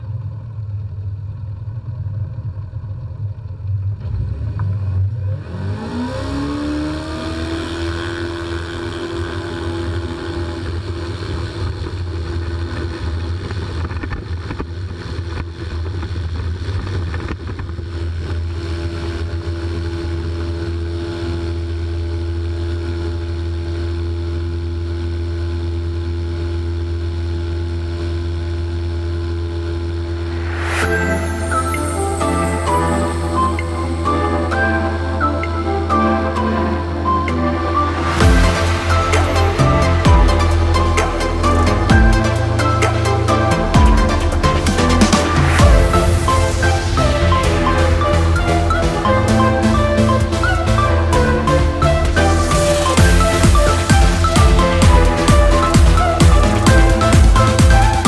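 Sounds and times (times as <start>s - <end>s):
engine and propeller whine: 0.0s - 58.0s.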